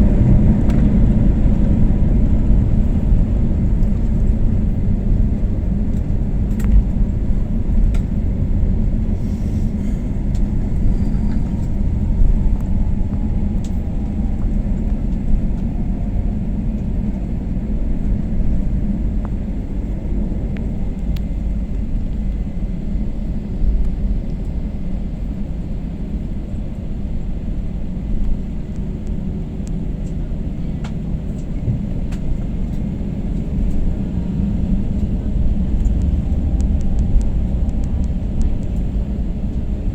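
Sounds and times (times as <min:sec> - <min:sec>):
airliner low rumble: 0:00.0 - 0:39.9.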